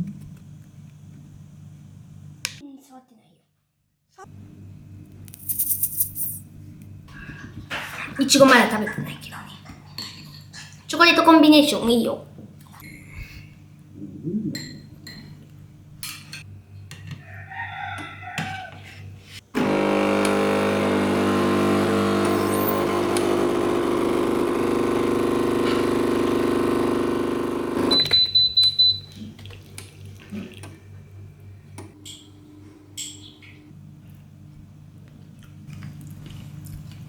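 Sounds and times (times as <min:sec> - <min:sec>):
kitchen appliance humming: 0:19.4 - 0:29.1
high beeps: 0:27.9 - 0:29.1.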